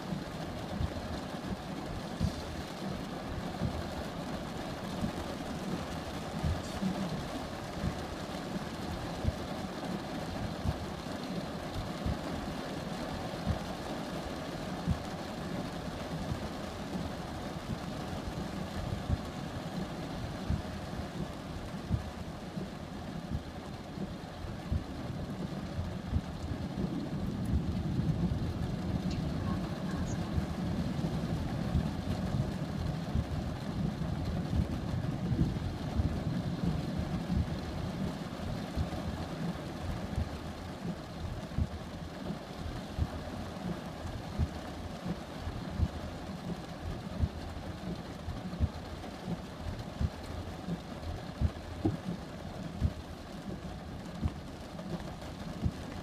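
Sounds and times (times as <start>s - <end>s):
thunder rumbling: 24.0s - 41.8s.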